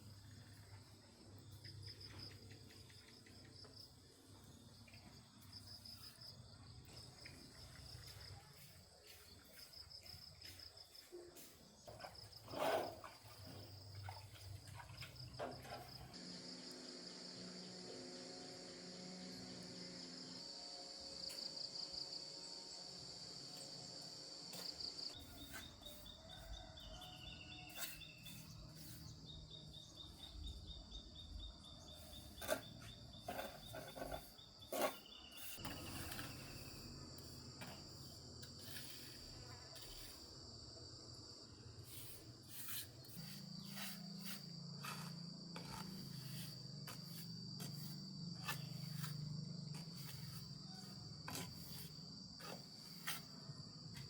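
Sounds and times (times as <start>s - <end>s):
insects trilling: 15.2s - 54.0s.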